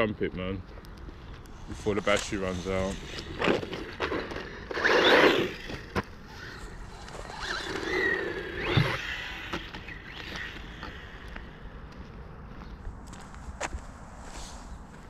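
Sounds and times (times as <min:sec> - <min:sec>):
tyres scrabbling on rough ground: 0:01.6 - 0:11.3
electric motor whining: 0:02.2 - 0:11.6.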